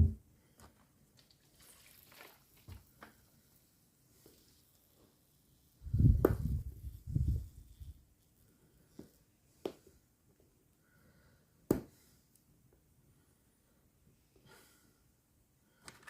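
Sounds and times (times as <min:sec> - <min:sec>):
rubber tube rubbing by hand: 0:05.7 - 0:08.1.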